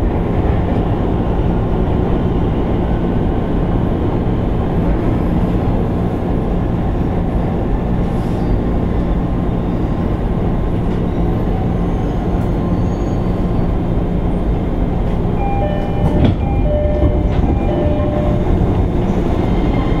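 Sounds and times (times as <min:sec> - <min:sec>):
train wheels rumbling on rail: 0:00.0 - 0:20.0
short high-pitched tones: 0:15.4 - 0:18.5.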